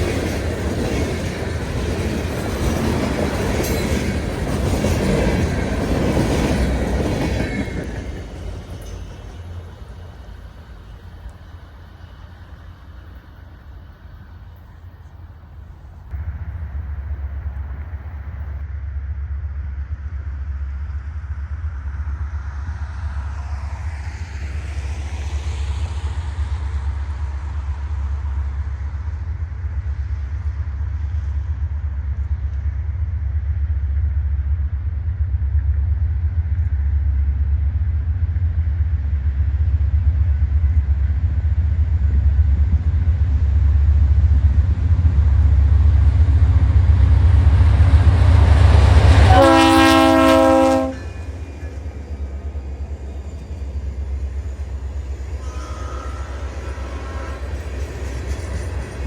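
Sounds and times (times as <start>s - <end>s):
diesel locomotive rumbling: 0.0s - 59.0s
train horn blast: 49.1s - 51.4s, 55.4s - 57.8s.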